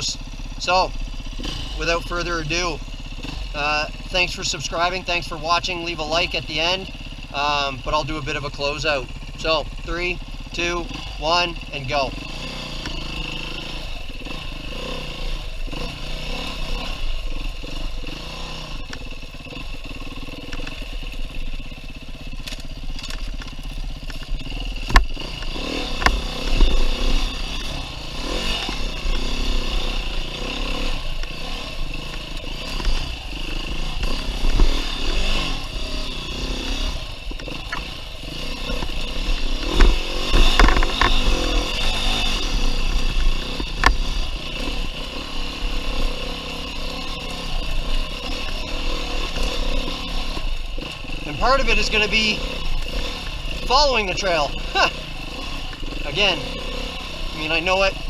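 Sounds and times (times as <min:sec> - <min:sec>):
dirt bike engine revving: 0:00.0 - 0:58.0
knocks and clatter: 0:38.6 - 0:42.1.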